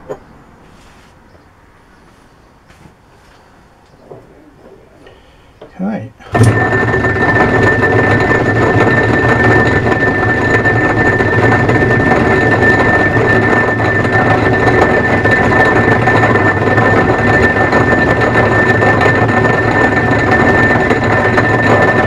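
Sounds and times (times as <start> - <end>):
lathe running with high whine: 5.0 - 22.0.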